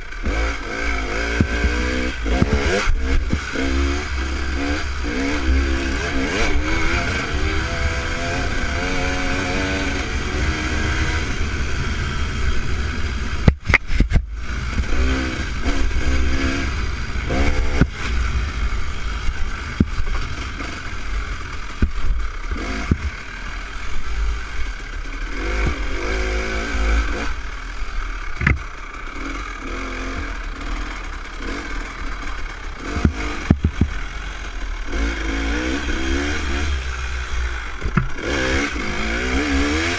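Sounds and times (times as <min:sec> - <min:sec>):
dirt bike engine revving: 0:00.0 - 0:39.9
sharp clattering knocks: 0:21.6 - 0:23.2, 0:32.8 - 0:34.0, 0:37.8 - 0:38.6.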